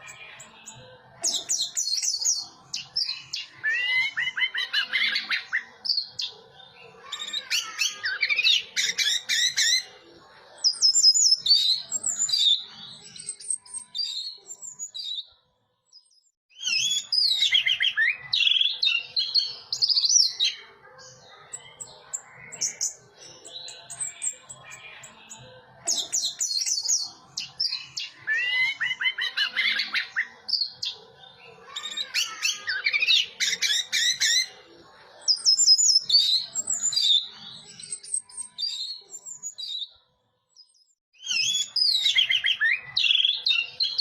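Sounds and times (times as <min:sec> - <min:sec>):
thrush singing whistled notes: 0:40.6 - 0:44.0.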